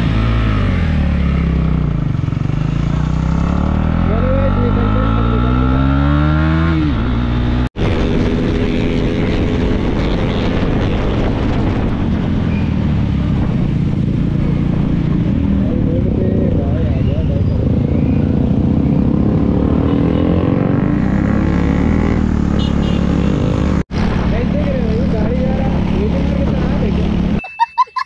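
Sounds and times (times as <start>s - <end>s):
motorcycle engine accelerating: 0.0s - 27.4s
rush of wind: 6.5s - 16.8s.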